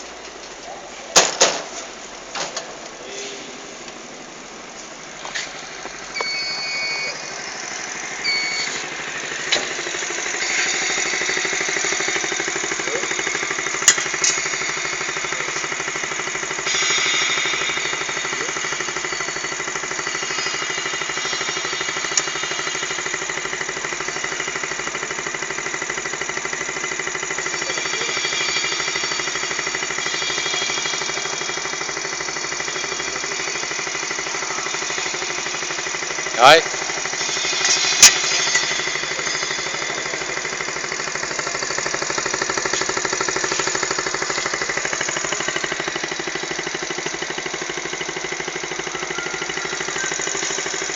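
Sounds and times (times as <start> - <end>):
motorcycle engine chugging: 0.0 - 50.9
short high beeps: 6.1 - 7.4, 8.2 - 8.9, 27.5 - 35.5, 48.8 - 50.9.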